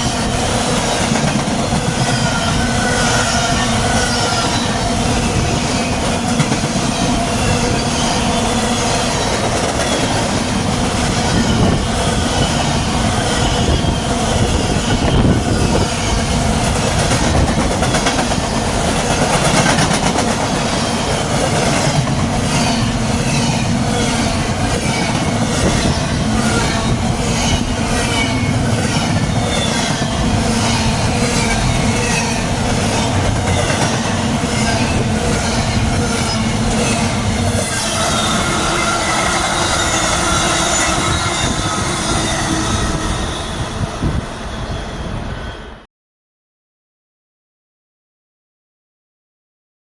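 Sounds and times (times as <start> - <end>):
wheel squeal: 0.0 - 10.4, 22.4 - 45.8
freight train rumble: 0.0 - 45.8
train wheels clicking over rail joints: 15.7 - 43.0.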